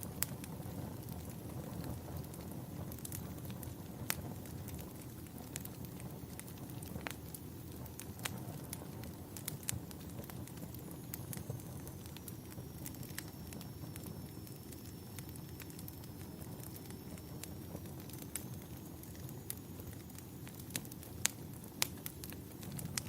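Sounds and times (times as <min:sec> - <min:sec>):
burning wood crackling: 0:00.0 - 0:23.0
campfire flames rumbling: 0:00.0 - 0:23.0
faint high whistle: 0:11.1 - 0:20.1.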